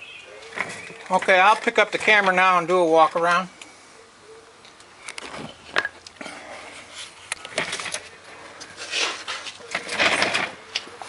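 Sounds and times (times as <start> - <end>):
rustling: 4.6 - 11.0.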